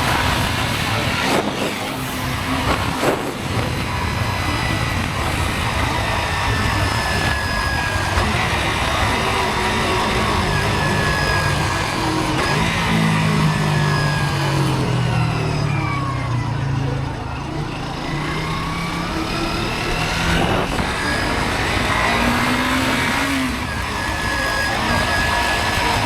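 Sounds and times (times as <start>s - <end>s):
wind on microphone: 0.0s - 10.5s
motorcycle engine running: 0.0s - 26.0s.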